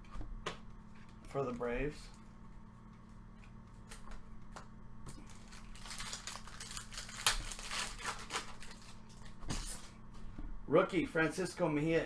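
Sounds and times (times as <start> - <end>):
card packaging crinkling: 5.1 - 9.9.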